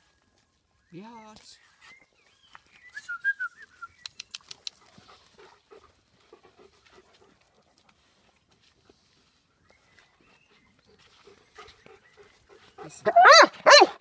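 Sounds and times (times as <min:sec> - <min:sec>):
sharp clicks: 0:04.0 - 0:04.8.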